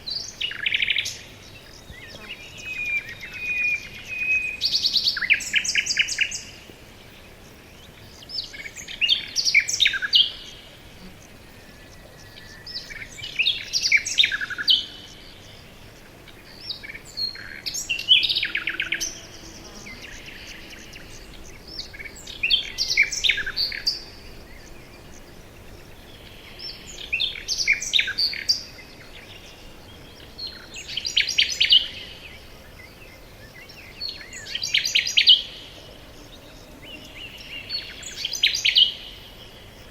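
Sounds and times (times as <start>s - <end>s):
faint background hiss: 0.0s - 39.9s
songbird singing: 0.0s - 39.9s.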